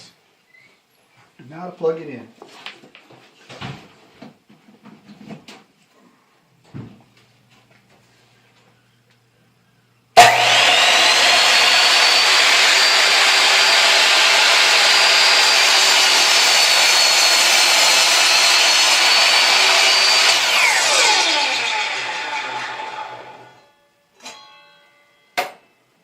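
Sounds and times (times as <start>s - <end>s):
saw cutting wooden board: 10.2s - 23.6s
miter saw whining: 10.2s - 23.7s.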